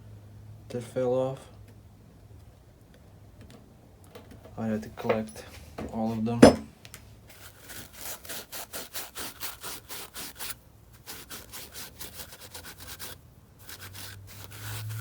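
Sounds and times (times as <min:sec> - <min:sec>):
scrubbing strokes by hand: 0:07.3 - 0:15.0.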